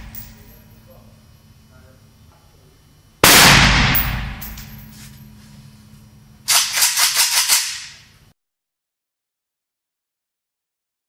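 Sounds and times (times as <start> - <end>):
rifle gunshots: 3.2 - 4.6.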